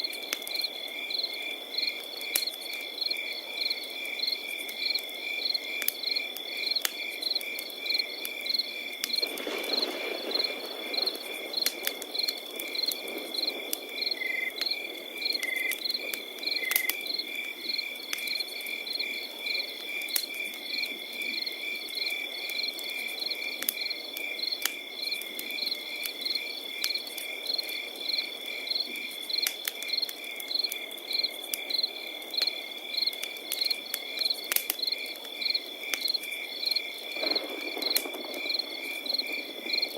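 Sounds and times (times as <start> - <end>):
campfire crackling: 0.0 - 39.9
crickets chirping: 0.0 - 39.9
high insect trill: 9.4 - 22.7.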